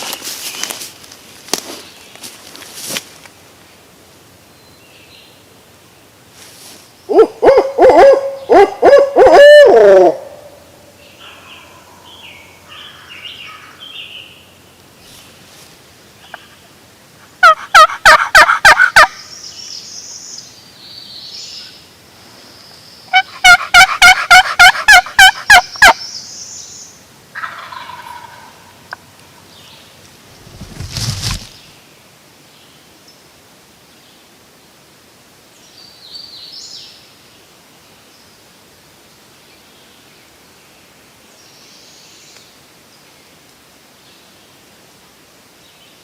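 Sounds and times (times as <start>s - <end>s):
turkey yelps on a call: 7.1s - 10.4s, 17.4s - 19.2s, 23.1s - 26.0s
owl hoot call: 7.1s - 10.6s, 23.1s - 26.0s.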